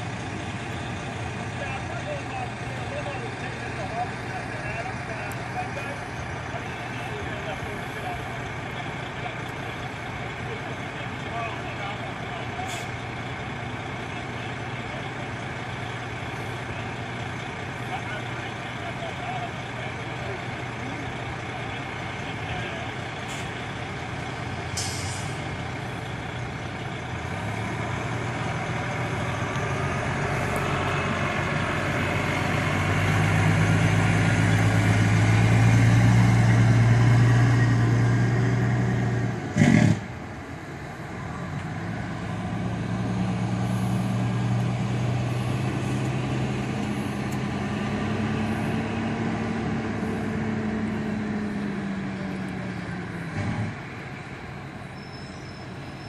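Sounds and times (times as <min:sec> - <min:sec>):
diesel fire truck engines running: 0:00.0 - 0:56.0
air brake hiss: 0:24.8 - 0:25.4.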